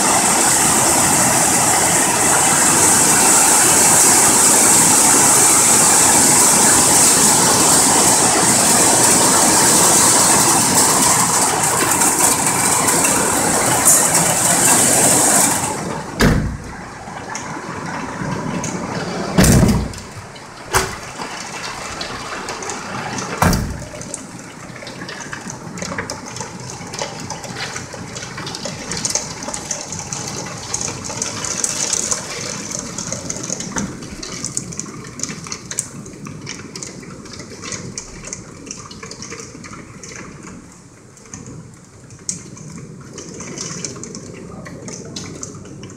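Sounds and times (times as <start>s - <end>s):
hail and rain pounding: 0.0s - 45.9s
loud knocks: 16.2s - 16.8s, 19.4s - 21.2s, 23.4s - 24.1s.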